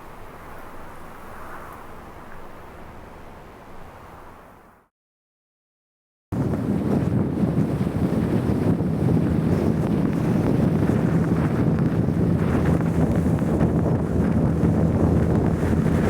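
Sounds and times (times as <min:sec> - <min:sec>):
strong blizzard wind: 0:06.3 - 0:16.0.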